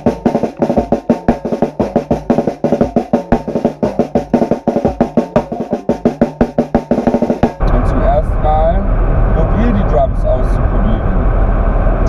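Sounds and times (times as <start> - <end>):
snare and bass drums: 0.0 - 7.7
steady low tone: 7.6 - 12.0.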